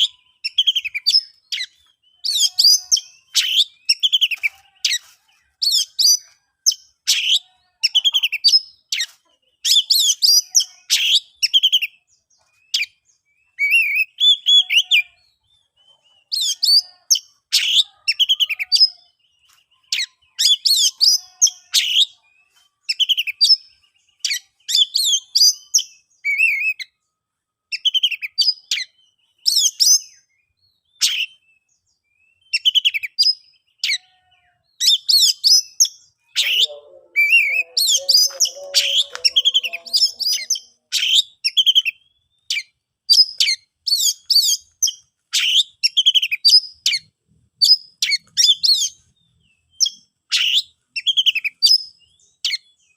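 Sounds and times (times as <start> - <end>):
bird singing whistled phrases: 34.8 - 44.6.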